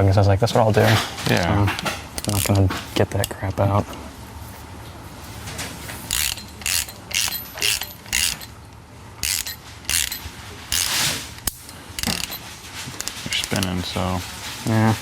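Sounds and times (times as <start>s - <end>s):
ratchet wrench clicking: 2.2s - 2.6s, 6.1s - 8.6s, 9.2s - 12.4s, 13.0s - 13.8s.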